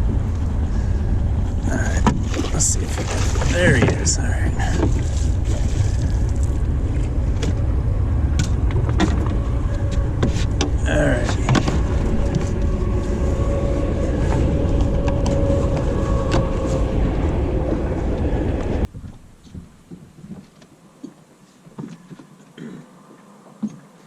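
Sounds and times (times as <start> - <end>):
boat motor running: 0.0 - 18.9
wind rumble on microphone: 0.0 - 21.2
knocks and clicks in boat: 1.4 - 12.9, 14.3 - 16.7, 18.6 - 24.0.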